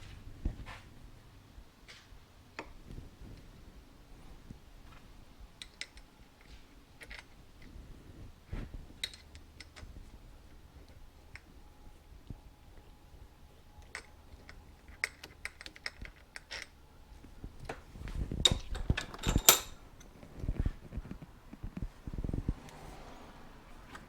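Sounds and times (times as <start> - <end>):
small metal clicks and taps: 5.6 - 7.7, 13.8 - 16.8.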